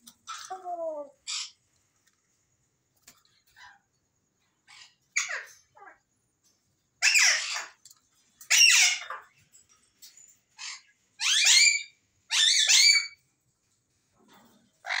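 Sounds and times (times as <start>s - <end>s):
parrot squawking: 7.0s - 7.8s, 8.5s - 9.3s, 10.6s - 13.2s.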